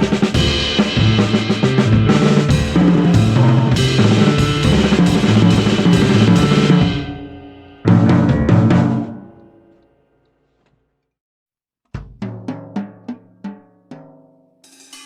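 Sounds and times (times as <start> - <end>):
drum kit solo: 0.0 - 9.8, 12.0 - 15.0
cymbals ringing: 0.0 - 10.2.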